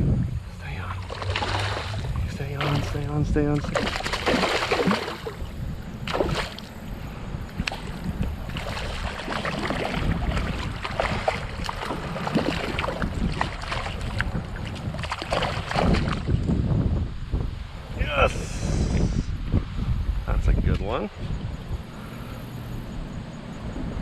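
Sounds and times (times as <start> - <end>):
wind rumbling on microphone: 0.0 - 24.0
creek water splashing: 0.7 - 16.4.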